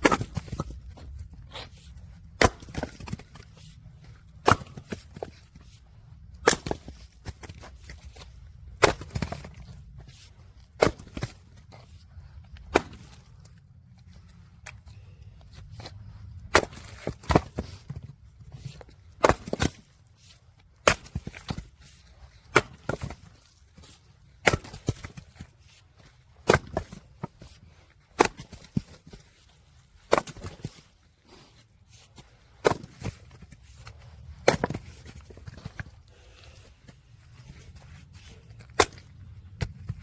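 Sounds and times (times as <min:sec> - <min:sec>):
axe chopping firewood: 0:00.0 - 0:00.9, 0:01.5 - 0:05.6, 0:06.3 - 0:09.8, 0:10.6 - 0:11.6, 0:12.5 - 0:13.6, 0:16.4 - 0:20.0, 0:20.8 - 0:25.5, 0:26.3 - 0:29.3, 0:30.0 - 0:30.9, 0:32.5 - 0:35.9, 0:38.6 - 0:40.0.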